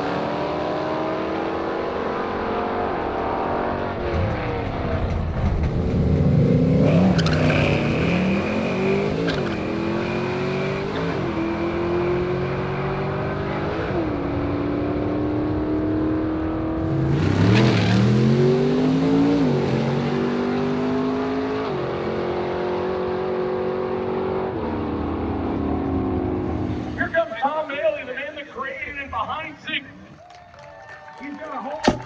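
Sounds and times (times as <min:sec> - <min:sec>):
car engine running under load: 0:25.4 - 0:29.7.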